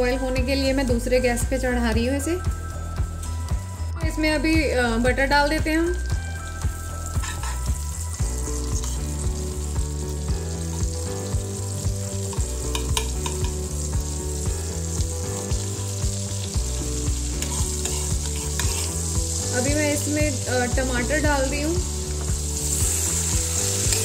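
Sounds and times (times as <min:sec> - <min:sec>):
butter sizzling in a pan: 0:06.0 - 0:24.0
metal spoon scraping pan: 0:07.2 - 0:07.7, 0:08.8 - 0:09.0, 0:17.4 - 0:19.1.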